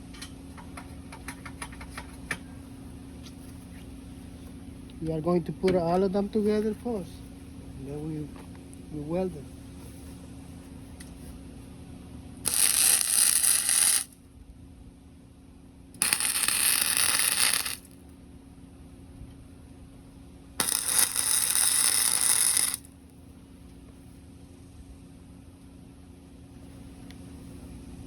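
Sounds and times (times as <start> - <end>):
welding arc crackle: 12.4 - 14.2, 16.0 - 18.0, 20.6 - 22.9.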